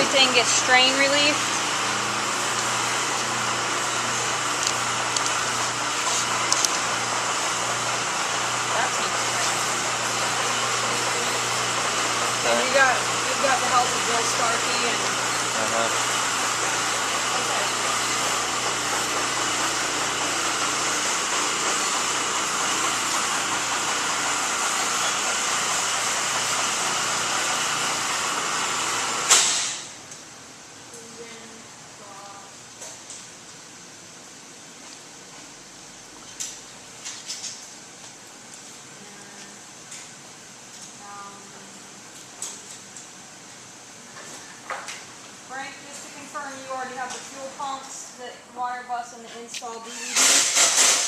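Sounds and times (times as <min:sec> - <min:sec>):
low machinery hum: 0:00.0 - 0:29.3.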